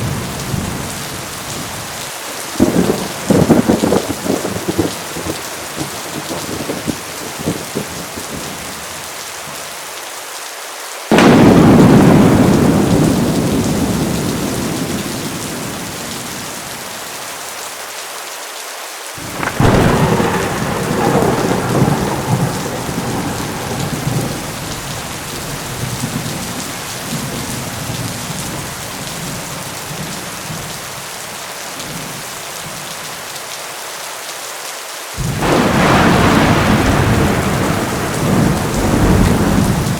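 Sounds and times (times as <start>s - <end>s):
heavy rain falling: 0.0s - 39.9s
thunder claps: 2.5s - 8.7s, 11.1s - 16.8s, 19.2s - 30.7s, 35.2s - 39.9s.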